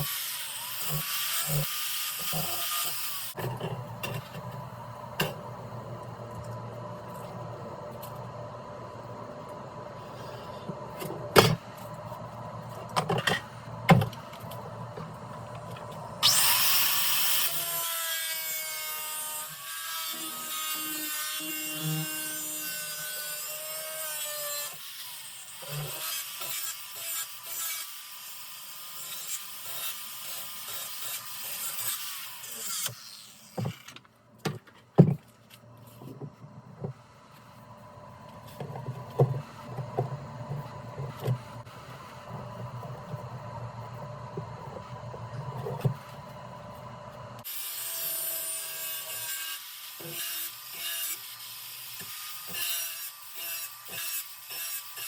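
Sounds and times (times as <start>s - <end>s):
power tool whining: 16.2s - 17.9s.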